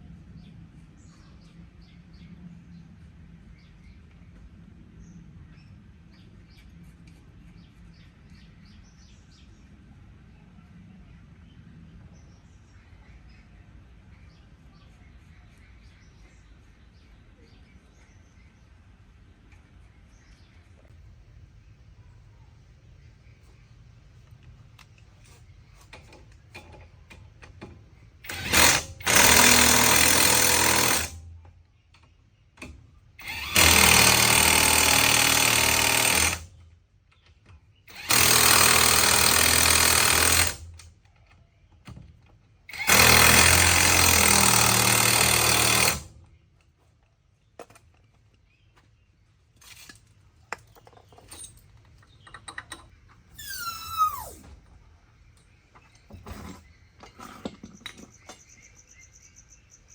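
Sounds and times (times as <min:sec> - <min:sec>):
power tool bursts: 0:28.2 - 0:31.2, 0:33.2 - 0:36.5, 0:37.9 - 0:40.8, 0:42.7 - 0:46.2, 0:53.4 - 0:54.5.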